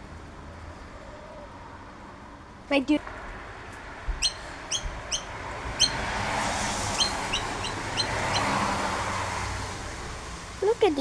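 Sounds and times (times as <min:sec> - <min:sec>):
bird giving sharp calls: 0:04.1 - 0:09.1.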